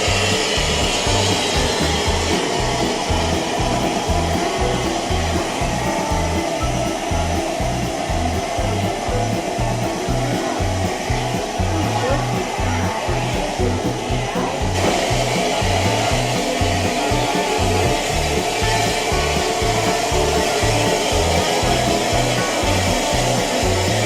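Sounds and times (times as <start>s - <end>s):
loud steady hiss: 0.0s - 24.0s
music with low bass line: 0.0s - 24.0s.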